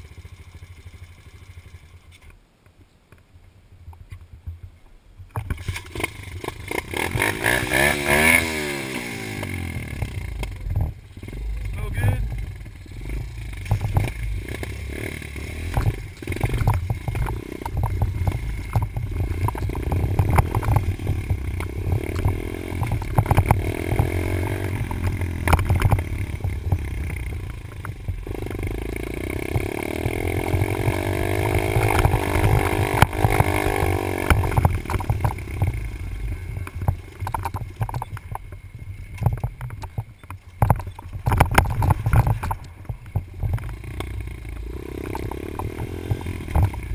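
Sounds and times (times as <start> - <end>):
dirt bike engine revving: 5.6 - 37.9, 43.4 - 46.9
knocks and rattles: 13.6 - 14.2, 15.7 - 35.8, 39.2 - 43.8.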